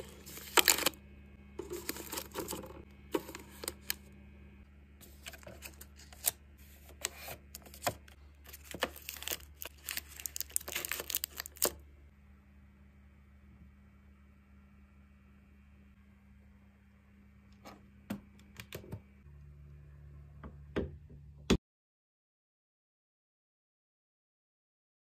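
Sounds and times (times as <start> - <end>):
packages clicking and tapping: 0.0 - 1.0, 1.6 - 4.0, 6.9 - 11.8
plastic crinkling: 0.0 - 1.0, 1.6 - 4.0, 5.0 - 11.8
faint low hum: 0.0 - 21.6.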